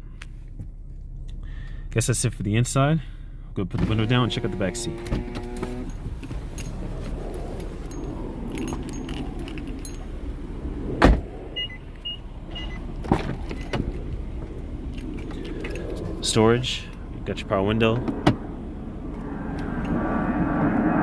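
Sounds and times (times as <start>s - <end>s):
power window motor running: 3.8s - 6.1s
loud thump: 11.0s - 11.3s.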